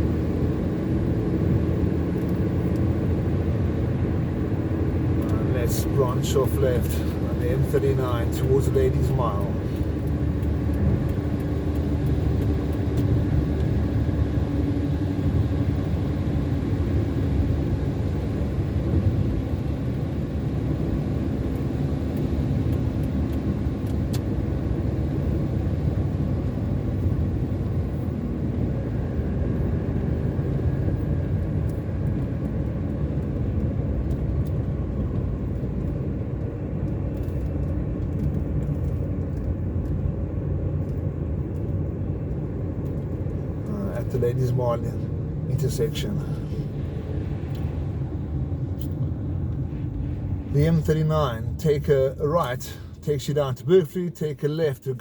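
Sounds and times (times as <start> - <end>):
car driving on wet road: 0.0 - 53.0.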